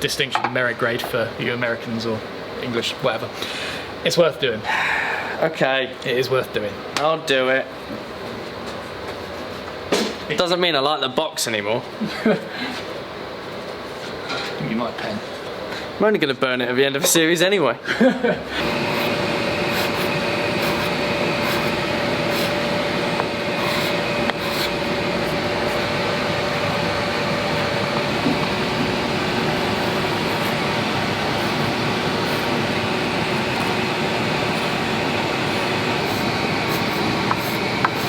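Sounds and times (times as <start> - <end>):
faint steady whine: 18.4 - 38.0
power sander on wood: 18.6 - 38.0.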